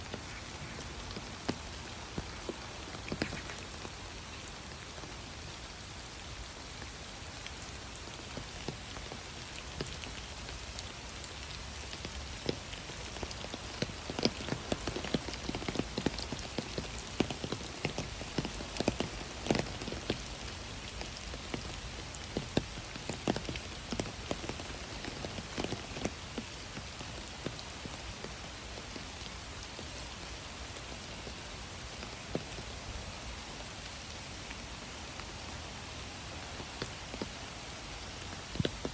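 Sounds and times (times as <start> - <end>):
raindrops tapping: 0.0 - 5.6, 7.4 - 33.6, 35.1 - 38.9
rain hissing: 0.0 - 38.9.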